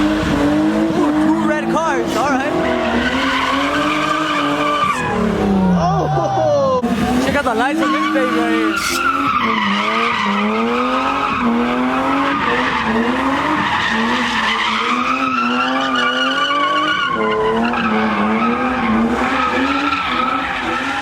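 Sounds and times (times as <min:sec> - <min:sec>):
car engine revving high: 0:00.0 - 0:05.9, 0:06.8 - 0:21.0
tires squealing and skidding: 0:00.0 - 0:21.0.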